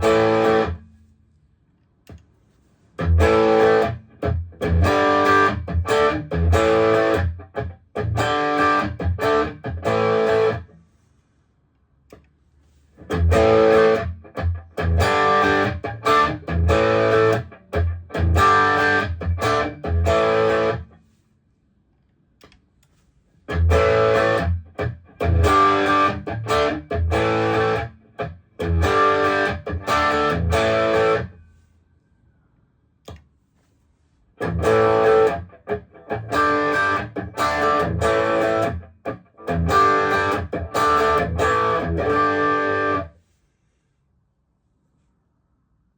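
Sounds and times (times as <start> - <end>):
distorted electric guitar chords: 0.0 - 0.8, 3.0 - 10.7, 13.0 - 20.9, 23.5 - 31.4, 34.4 - 43.1.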